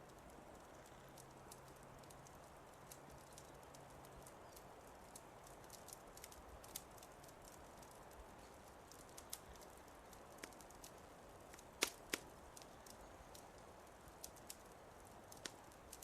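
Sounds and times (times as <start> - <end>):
wood fire crackling: 0.0 - 16.0
sharp fire pops: 2.9 - 13.0, 14.0 - 16.0.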